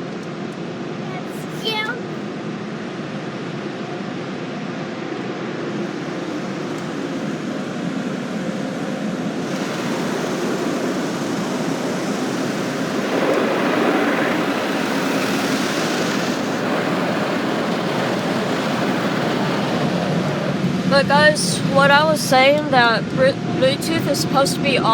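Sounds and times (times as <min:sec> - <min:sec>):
car wash water spray: 0:05.7 - 0:23.0
air blowers rushing: 0:05.7 - 0:24.9.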